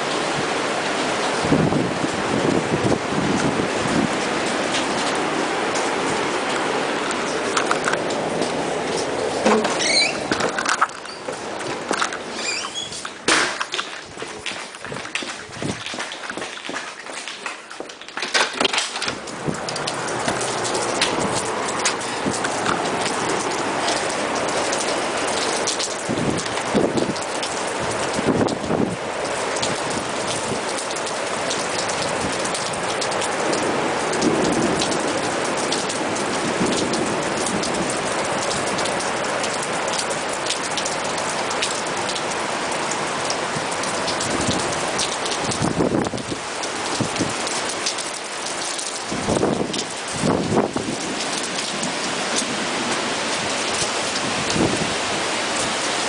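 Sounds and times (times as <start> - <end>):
wind gusts: 0.0 - 17.5, 18.6 - 40.9, 42.6 - 56.0
heavy rain pouring: 0.0 - 56.0
loud knocks: 9.4 - 10.6.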